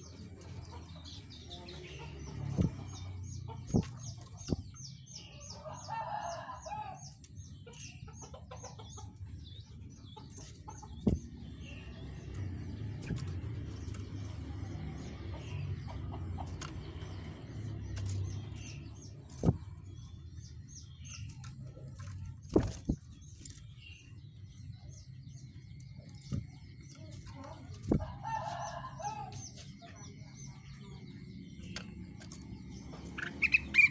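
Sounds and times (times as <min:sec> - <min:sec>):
songbird chirping: 0:00.0 - 0:33.9
sharp knocks: 0:10.4 - 0:11.5.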